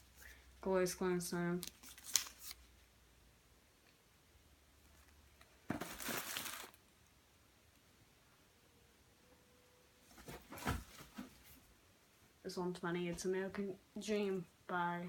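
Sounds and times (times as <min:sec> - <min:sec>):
packaging rustling and crinkling: 0:01.6 - 0:02.6, 0:05.7 - 0:06.8.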